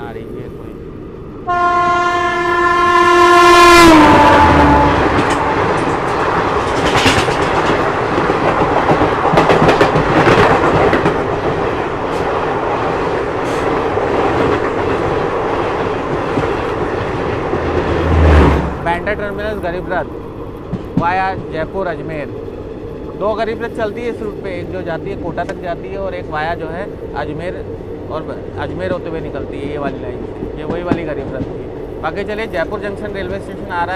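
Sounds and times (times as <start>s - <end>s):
train horn blast: 1.4s - 6.0s
train wheels clickety-clack: 5.0s - 22.3s, 23.0s - 33.9s.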